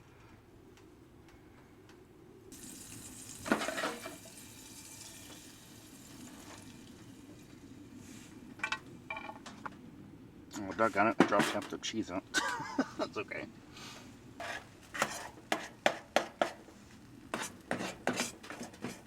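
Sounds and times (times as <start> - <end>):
butter sizzling in a pan: 2.5 - 7.6
cookware clattering: 3.5 - 4.3.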